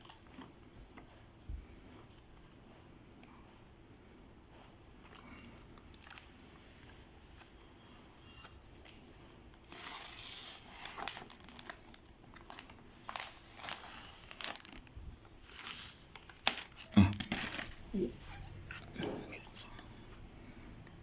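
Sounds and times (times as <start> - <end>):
plastic packaging crinkling and tearing: 5.1 - 7.5, 8.8 - 18.4.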